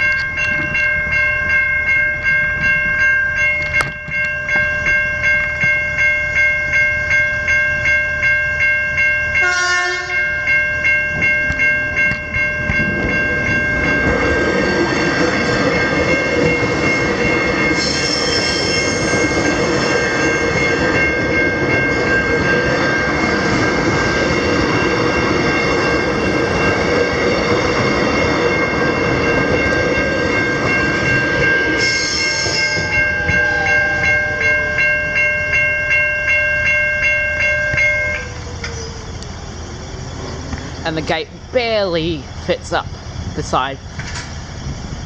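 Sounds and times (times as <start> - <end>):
level crossing bells ringing: 0.0 - 38.7
train passing with wheel noise: 0.0 - 45.0
train horn blast: 9.4 - 10.3.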